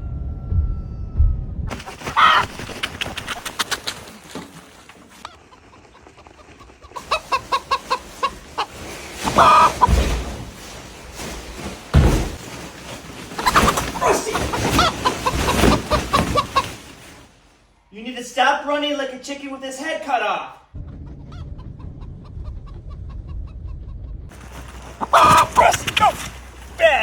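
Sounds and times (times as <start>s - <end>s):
low thumps: 0.0s - 1.8s
chicken clucking and squawking: 1.8s - 4.0s, 5.1s - 10.8s, 13.4s - 17.2s, 20.8s - 26.3s.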